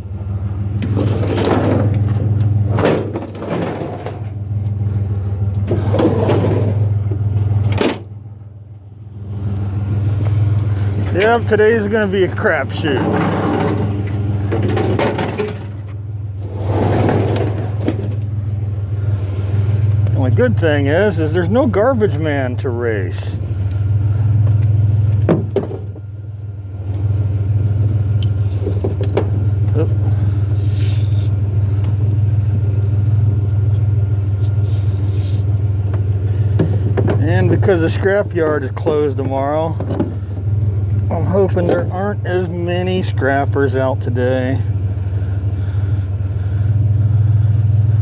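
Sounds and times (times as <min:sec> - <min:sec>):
road noise: 0:00.0 - 0:48.0
truck engine hum: 0:00.0 - 0:48.0
knocks and rattles: 0:00.6 - 0:08.5, 0:09.3 - 0:22.3, 0:23.2 - 0:26.2, 0:26.9 - 0:30.6, 0:35.5 - 0:43.6.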